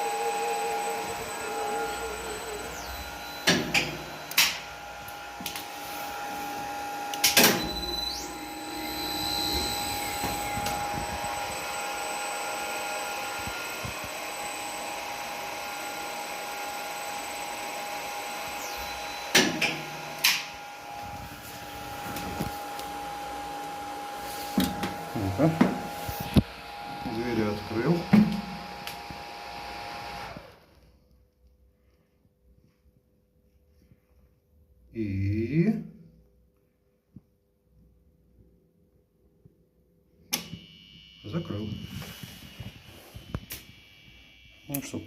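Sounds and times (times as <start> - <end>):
lift machinery running: 0.0 - 14.3.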